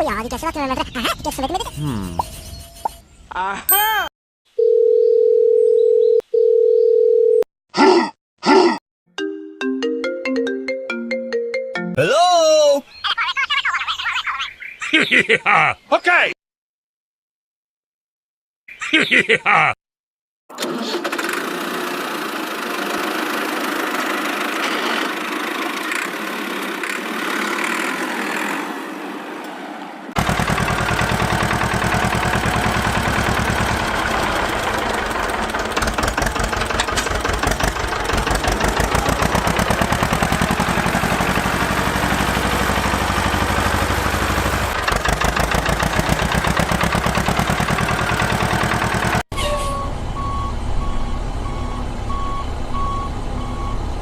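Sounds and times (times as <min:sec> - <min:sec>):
tractor engine puttering: 0:20.5 - 0:28.8, 0:30.2 - 0:50.5.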